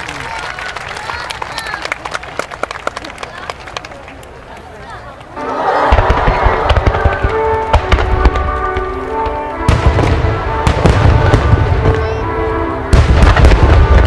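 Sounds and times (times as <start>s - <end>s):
fireworks bursting: 5.7s - 14.0s.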